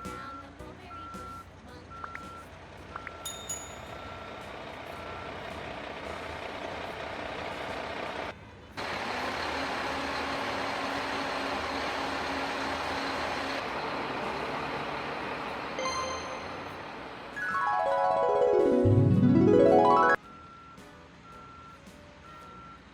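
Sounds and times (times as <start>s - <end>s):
truck reversing alarm beeping: 0.0s - 7.8s, 8.8s - 22.9s
engine noise: 1.0s - 17.4s.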